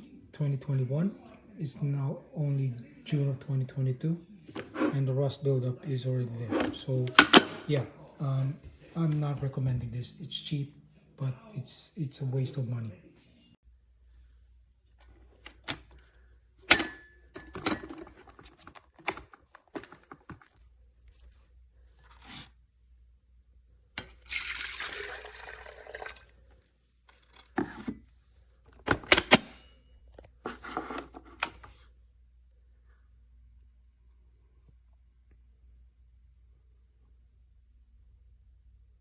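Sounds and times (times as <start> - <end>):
water running: 24.0 - 26.5.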